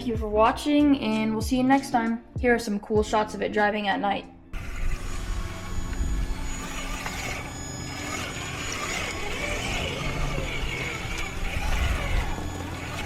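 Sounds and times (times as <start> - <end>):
electric motor whine: 4.6 - 13.0
steady rumble: 4.6 - 13.0.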